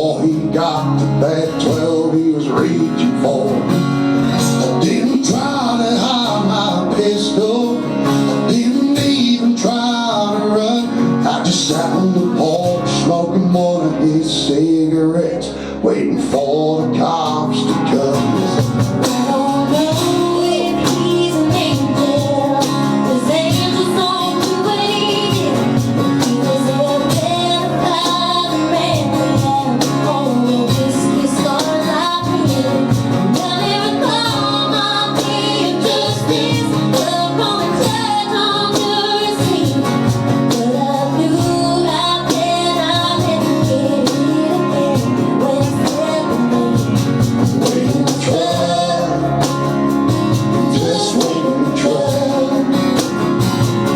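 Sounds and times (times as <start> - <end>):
country band playing: 0.0 - 53.9
woman singing: 4.3 - 13.7, 18.8 - 53.4.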